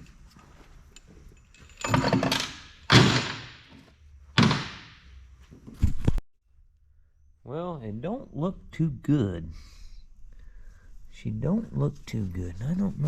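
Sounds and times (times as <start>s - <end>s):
metal clunks and thuds: 1.8s - 3.8s, 4.4s - 5.0s.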